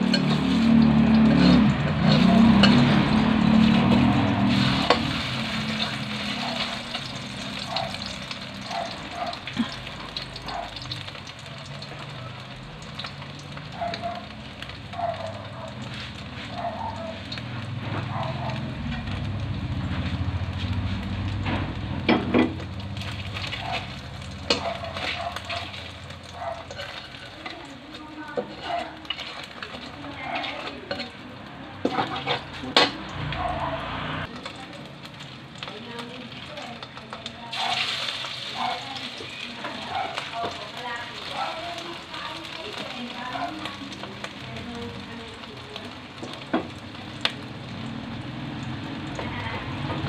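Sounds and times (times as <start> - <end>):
burger patties sizzling in oil: 0.0 - 50.0
metal spatula knocking on pan: 21.5 - 22.7.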